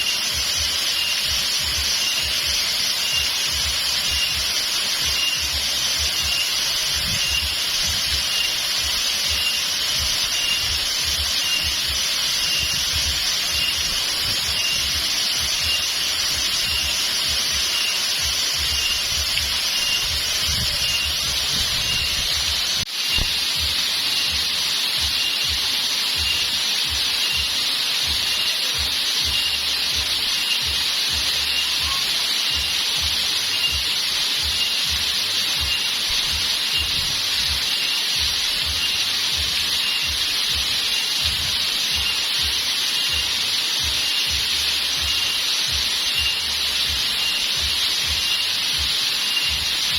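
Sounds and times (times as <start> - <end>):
faint high chirp: 0.0 - 22.4, 26.2 - 41.2, 41.9 - 49.9
waterfall rushing: 0.0 - 49.9.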